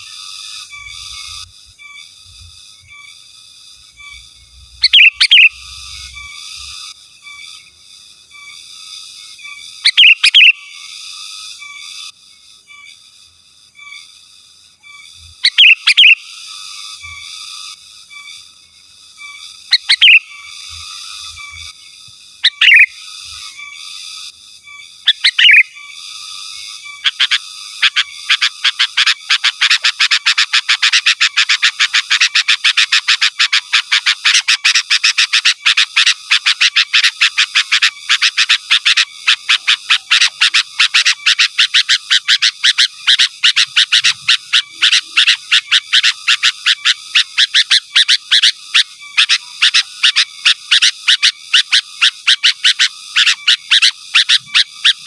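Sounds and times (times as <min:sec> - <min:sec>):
bulbul calling: 0:04.8 - 0:06.2, 0:09.8 - 0:10.6, 0:15.4 - 0:16.2, 0:19.7 - 0:20.3, 0:22.4 - 0:22.9, 0:25.1 - 0:25.7, 0:27.0 - 0:55.0.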